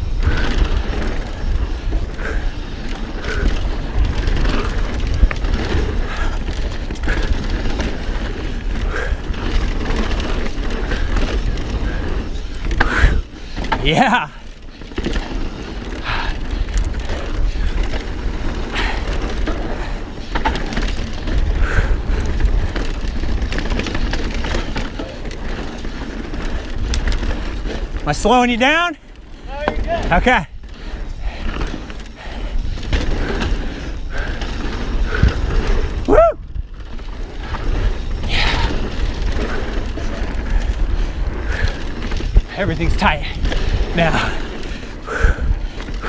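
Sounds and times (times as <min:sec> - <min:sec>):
bike rattling: 0:00.0 - 0:46.0
tyres on dirt: 0:00.0 - 0:46.0
wind buffeting microphone: 0:00.0 - 0:46.0.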